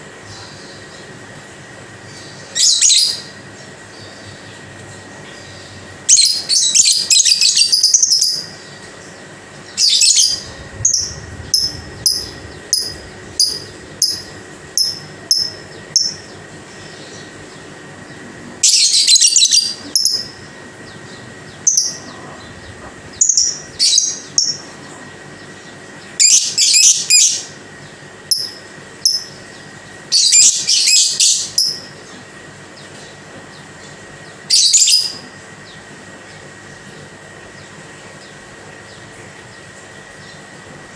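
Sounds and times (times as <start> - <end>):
lovebird chattering and chirping: 9.8 - 16.4, 18.6 - 20.4, 21.0 - 24.7, 28.3 - 29.4.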